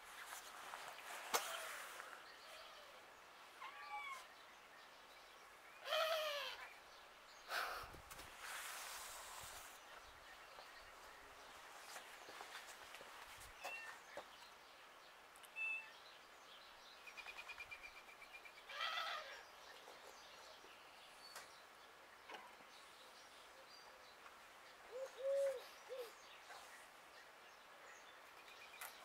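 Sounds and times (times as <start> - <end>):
birds chirping: 0.3 - 29.0
bird cooing call: 5.8 - 6.7, 24.9 - 26.3.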